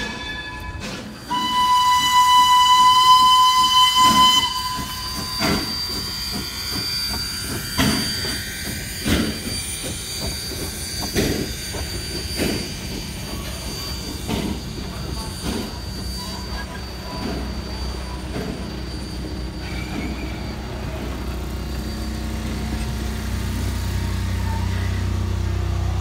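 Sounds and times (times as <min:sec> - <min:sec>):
steam whistle blast: 0:00.0 - 0:08.4
hissing steam: 0:00.8 - 0:24.4.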